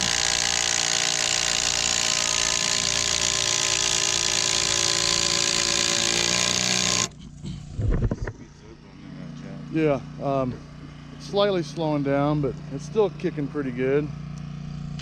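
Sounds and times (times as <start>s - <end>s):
impact driver driving screw into wood: 0.0s - 7.1s.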